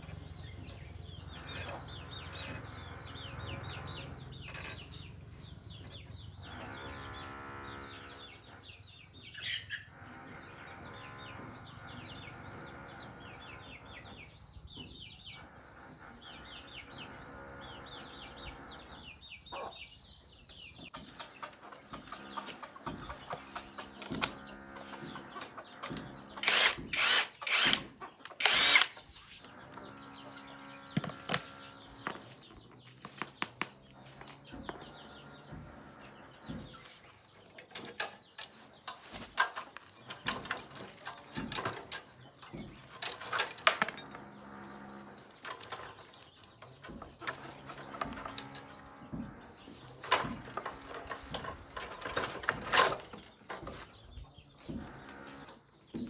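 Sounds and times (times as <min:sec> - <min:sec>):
hand tools clinking and knocking: 0:25.0 - 0:29.0, 0:31.0 - 0:35.5, 0:36.5 - 0:44.6, 0:45.2 - 0:56.0
impact driver bursts: 0:26.4 - 0:29.0.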